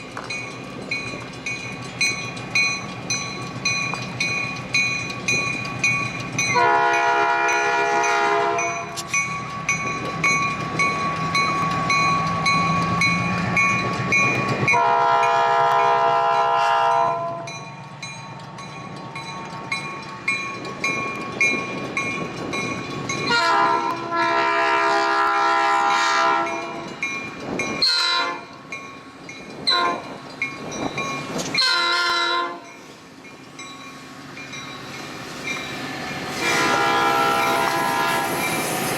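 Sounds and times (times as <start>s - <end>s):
train rumbling on rails: 0.0s - 38.9s
train horn blasts: 6.5s - 9.0s, 14.7s - 17.6s, 23.3s - 26.8s, 27.8s - 28.5s, 29.7s - 30.0s, 31.6s - 32.7s, 36.3s - 38.4s.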